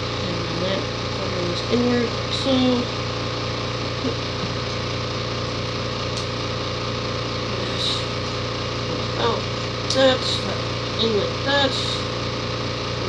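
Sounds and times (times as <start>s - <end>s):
low mechanical motor hum: 0.0s - 13.0s.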